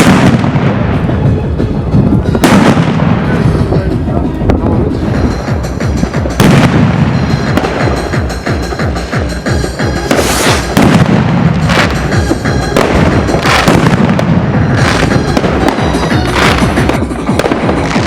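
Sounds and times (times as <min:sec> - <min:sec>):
background music with bass line: 0:00.0 - 0:18.0
fireworks bangs: 0:00.0 - 0:18.0.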